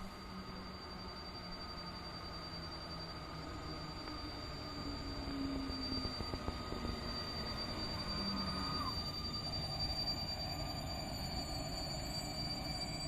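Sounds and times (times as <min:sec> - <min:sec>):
train rumbling on rails: 0:03.0 - 0:13.0.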